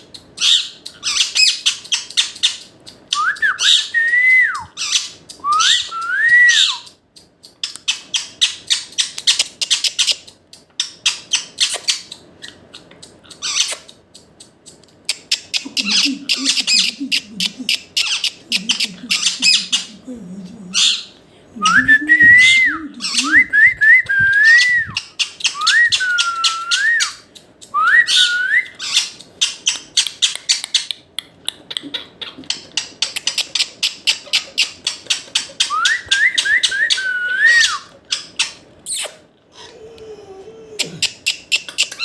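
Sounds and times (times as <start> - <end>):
parrot clicks and chatter: 0.0 - 42.0
parrot whistling: 0.4 - 6.9, 15.5 - 20.0, 20.7 - 29.1, 35.6 - 37.9.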